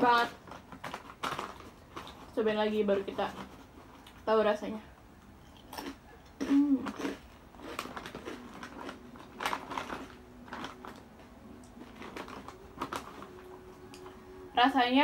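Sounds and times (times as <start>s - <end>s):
foil snack bag crinkling: 0.0s - 4.4s, 5.7s - 14.8s
crunchy snack chewing: 5.2s - 14.2s.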